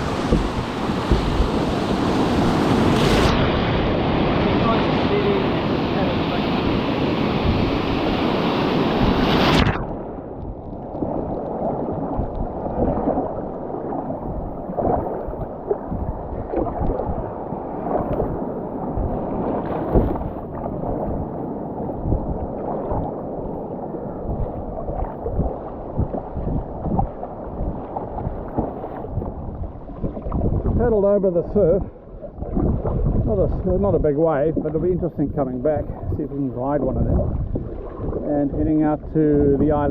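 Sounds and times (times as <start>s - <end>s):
surf and wind hiss: 0.0s - 9.8s, 33.3s - 37.2s
water sloshing around kayak: 0.0s - 39.9s.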